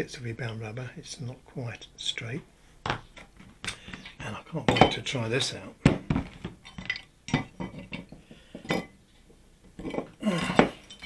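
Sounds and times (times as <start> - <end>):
metal tools clinking: 9.8 - 11.0.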